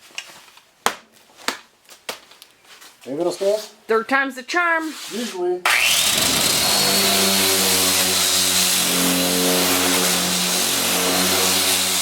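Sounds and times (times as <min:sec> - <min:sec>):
motor whining and humming: 0:05.7 - 0:12.0.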